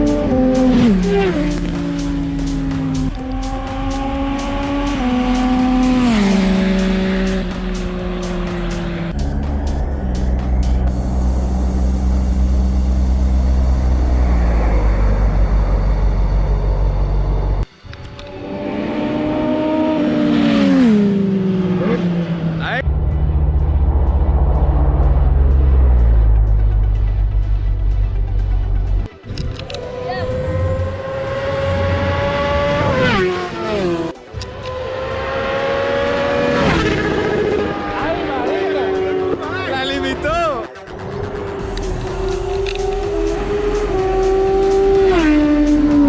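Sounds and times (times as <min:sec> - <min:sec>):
motorcycle low rumble: 0:00.0 - 0:35.6, 0:40.2 - 0:46.0
motorcycle engine passing by: 0:34.8 - 0:39.4.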